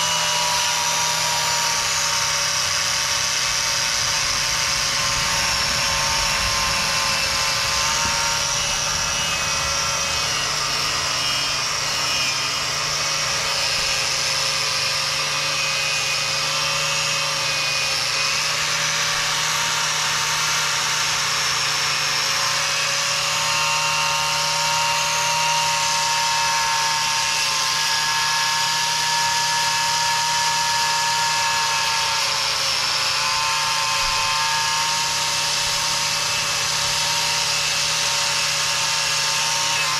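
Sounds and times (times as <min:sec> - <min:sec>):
angle grinder with wire brush: 0:00.0 - 0:39.9.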